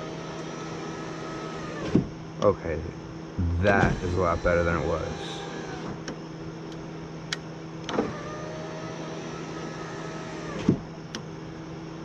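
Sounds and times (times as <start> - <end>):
power window motor whine: 0.0 - 2.2, 3.4 - 6.2, 7.8 - 11.3.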